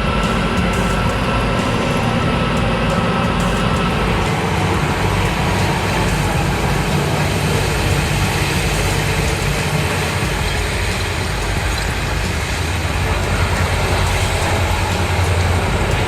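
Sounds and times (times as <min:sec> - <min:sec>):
heavy diesel engine rumbling: 0:00.0 - 0:16.0.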